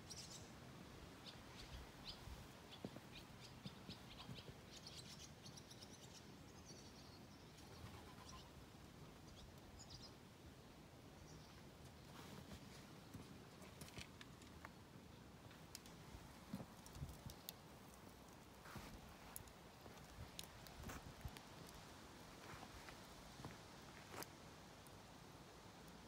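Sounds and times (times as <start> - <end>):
small birds chirping: 0.0 - 0.6, 1.2 - 10.3, 11.1 - 14.0.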